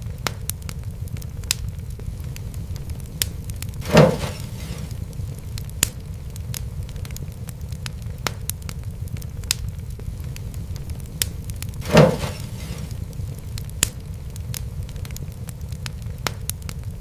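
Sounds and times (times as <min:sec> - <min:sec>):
fire crackling and snapping: 0:00.0 - 0:17.0
low rumble of flames: 0:00.0 - 0:17.0
loud fire pop: 0:02.8 - 0:07.2, 0:09.4 - 0:15.2.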